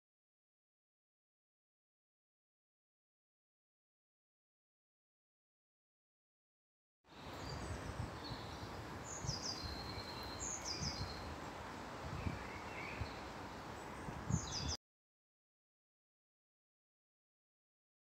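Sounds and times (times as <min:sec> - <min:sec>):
steady background hiss: 0:07.1 - 0:14.8.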